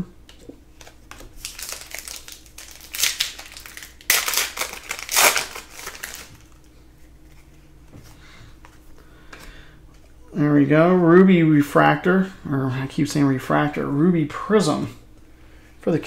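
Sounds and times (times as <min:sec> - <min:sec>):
plastic wrapper crinkling: 0:00.7 - 0:07.5.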